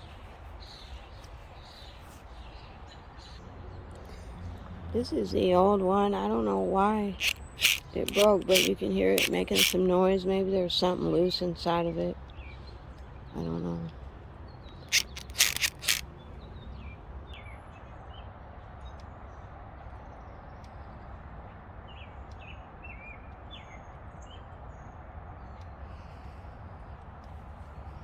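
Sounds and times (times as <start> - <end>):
birds chirping: 0.0 - 10.1
door lock actuator rattling: 7.2 - 9.8, 14.9 - 16.0.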